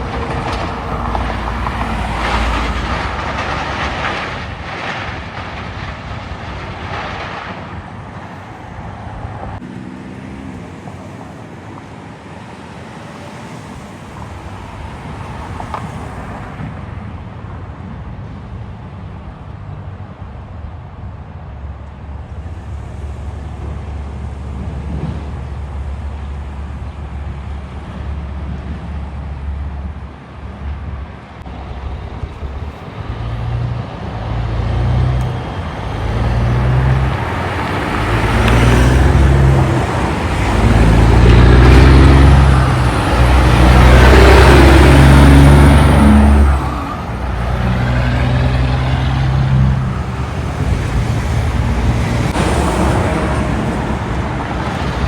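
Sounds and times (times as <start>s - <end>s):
traffic noise: 0.0s - 55.0s
truck diesel engine shifting gears: 32.2s - 55.0s.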